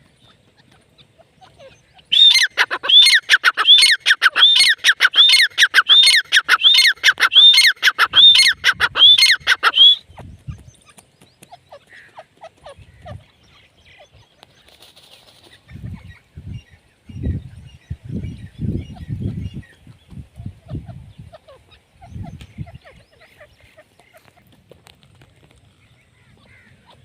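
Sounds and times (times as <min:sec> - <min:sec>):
bird calling sharp repeated notes: 0:02.0 - 0:10.1.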